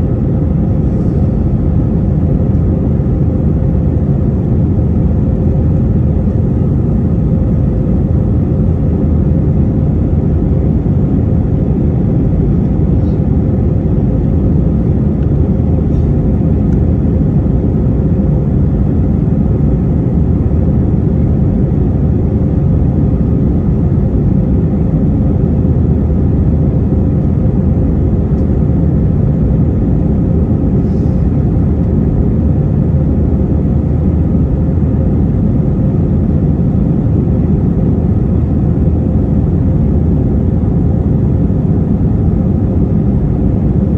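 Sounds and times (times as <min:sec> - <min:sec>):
airplane cabin engine drone: 0:00.0 - 0:43.9.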